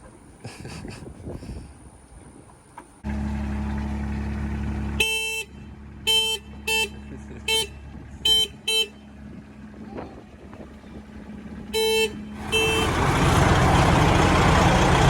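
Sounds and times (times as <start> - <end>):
diesel engine idling: 3.0 - 15.0
vehicle horn toots: 4.9 - 9.2, 11.7 - 13.4.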